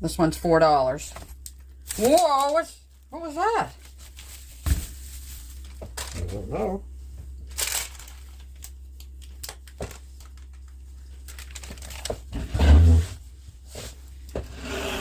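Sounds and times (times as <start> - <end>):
grocery bags rustling and clicking: 1.0 - 6.4, 7.3 - 12.4.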